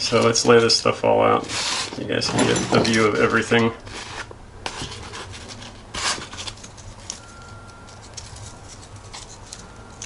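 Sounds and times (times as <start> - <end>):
rustling scrape: 0.0 - 10.0.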